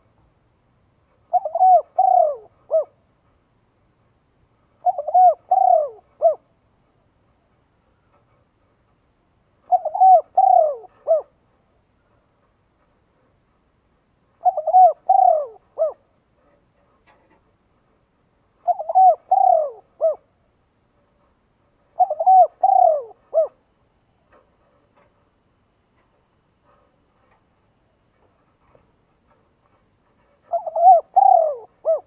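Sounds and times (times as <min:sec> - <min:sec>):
dove cooing: 0:01.3 - 0:03.0, 0:04.8 - 0:06.5, 0:09.6 - 0:11.4, 0:14.4 - 0:16.1, 0:18.6 - 0:20.3, 0:22.0 - 0:23.6, 0:30.4 - 0:32.0.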